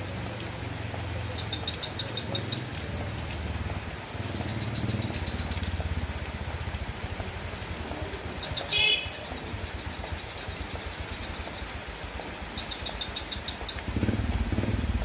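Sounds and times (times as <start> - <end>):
steady rain falling: 0.0 - 15.0
high evenly spaced ticks: 9.4 - 15.0.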